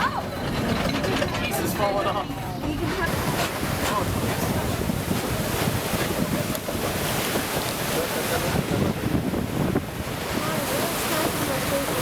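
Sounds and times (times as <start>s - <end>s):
train car running: 0.0s - 4.7s
wind buffeting microphone: 0.0s - 12.0s.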